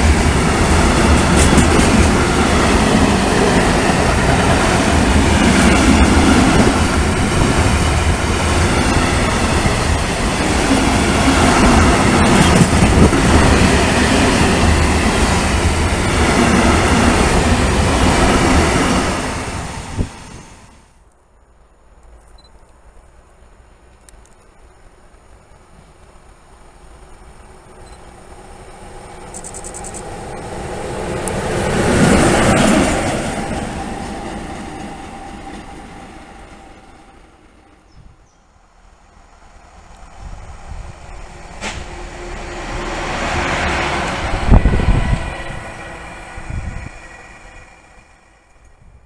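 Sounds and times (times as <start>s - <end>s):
wheels on rails: 0.0s - 18.9s, 25.1s - 36.8s
diesel locomotive engine: 0.0s - 21.0s, 24.8s - 49.0s
freight train rolling past: 0.0s - 21.0s, 25.5s - 49.0s.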